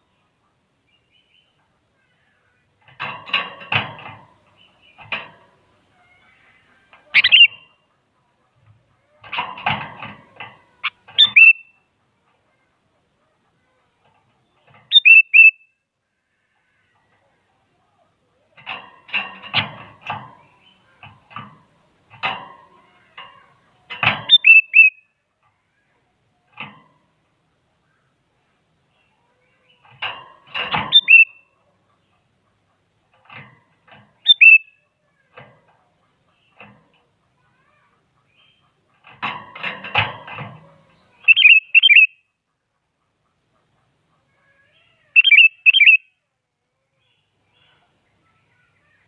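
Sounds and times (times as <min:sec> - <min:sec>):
bird whistled song: 0:07.2 - 0:07.7, 0:11.2 - 0:11.8, 0:14.9 - 0:15.7, 0:24.3 - 0:25.0, 0:30.9 - 0:31.4, 0:34.2 - 0:34.8, 0:41.3 - 0:42.2, 0:45.2 - 0:46.1.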